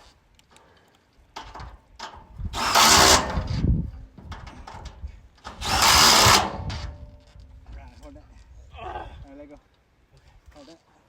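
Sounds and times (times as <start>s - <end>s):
power drill-driver running: 2.6s - 3.6s, 5.5s - 7.0s.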